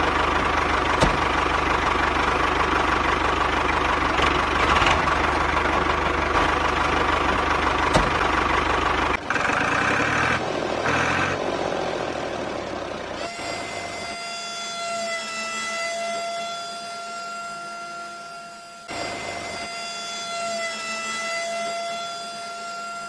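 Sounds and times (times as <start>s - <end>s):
high motor whine: 0.0s - 23.0s
small electric motors whirring: 13.2s - 23.0s.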